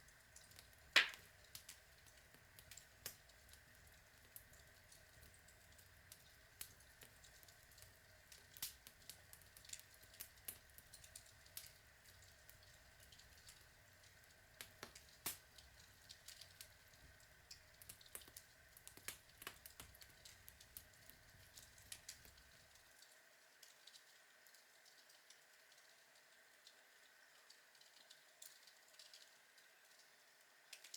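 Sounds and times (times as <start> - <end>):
faint steady hiss: 0.0 - 30.9
log fire crackling and popping: 0.3 - 13.7, 14.5 - 22.5.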